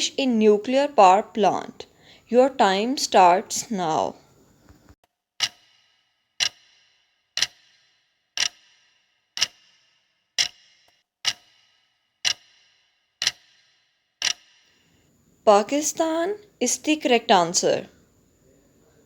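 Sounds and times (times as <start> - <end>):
clock ticking: 5.4 - 5.8, 6.4 - 6.8, 7.4 - 9.8, 10.4 - 14.6.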